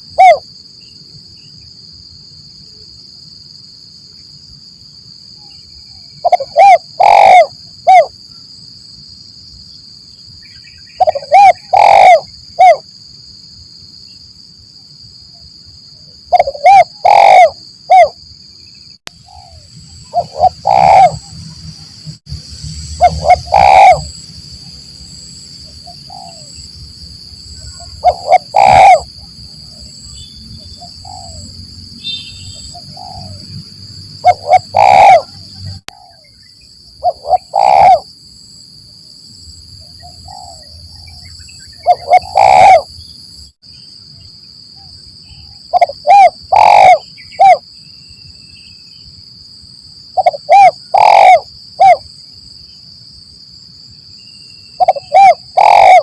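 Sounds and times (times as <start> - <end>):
dove cooing: 0.0 - 0.4, 6.2 - 8.1, 11.0 - 12.8, 16.3 - 18.2, 19.3 - 21.5, 23.0 - 24.1, 25.8 - 26.5, 27.6 - 29.8, 30.8 - 31.5, 32.7 - 33.5, 34.2 - 36.2, 37.0 - 38.0, 40.2 - 40.8, 41.8 - 42.9, 45.7 - 47.6, 50.2 - 52.0, 54.8 - 56.0
steady high-pitched hum: 0.0 - 43.2.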